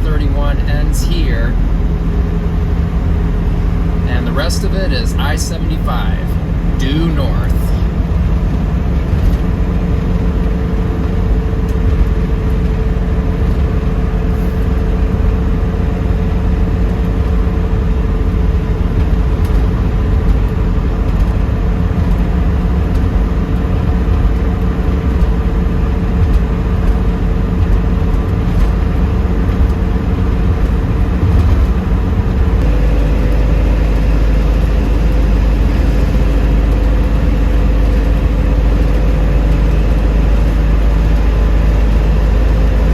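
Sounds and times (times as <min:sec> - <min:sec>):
car engine and road noise: 0:00.0 - 0:42.9.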